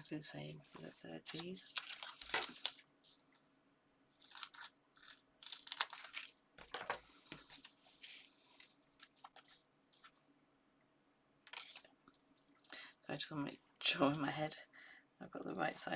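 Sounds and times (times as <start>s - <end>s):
paper rustling and crinkling: 0.5s - 3.2s, 4.1s - 10.3s.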